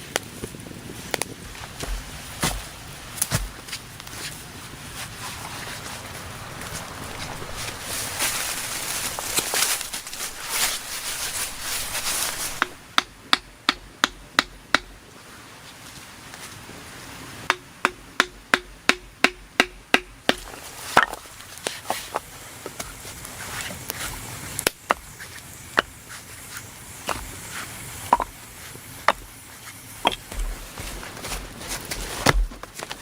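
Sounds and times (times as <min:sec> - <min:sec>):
hand tool striking wood: 0:01.6 - 0:04.4, 0:17.5 - 0:21.2, 0:30.0 - 0:32.7.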